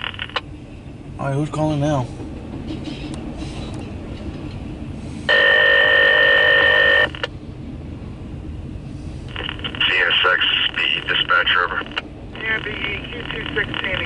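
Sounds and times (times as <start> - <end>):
low rumble of radio noise: 0.0 - 14.0
radio call tone: 5.3 - 7.3, 9.3 - 14.0.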